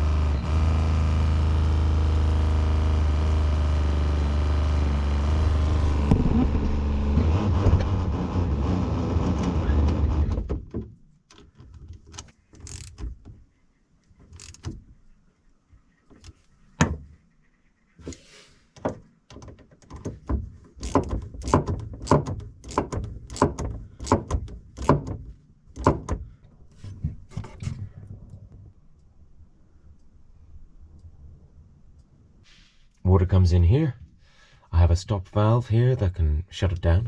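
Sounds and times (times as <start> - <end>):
sharp clicks and knocks: 5.4 - 13.4, 14.2 - 15.0, 18.8 - 29.1.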